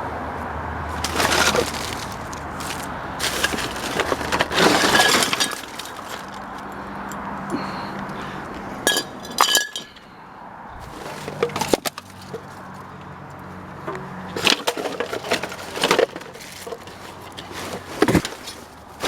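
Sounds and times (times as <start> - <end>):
junk rustling and clattering: 0.9 - 6.8, 10.8 - 12.9, 13.8 - 19.0
glassy clinks: 8.9 - 10.0.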